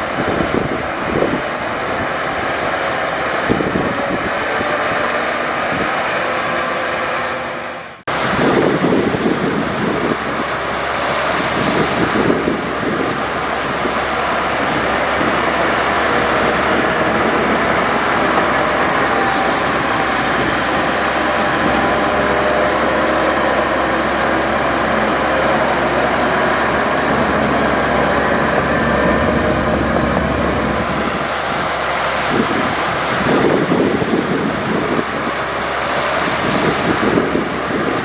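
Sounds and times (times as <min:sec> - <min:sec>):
heavy machinery diesel engine running: 0:00.0 - 0:38.0
faint whining tones: 0:13.0 - 0:20.6.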